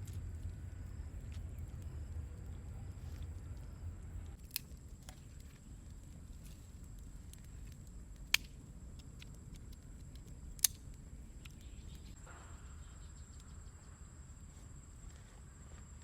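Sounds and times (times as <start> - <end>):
low steady rumble: 0.0 - 16.0
sharp snaps: 7.0 - 12.2.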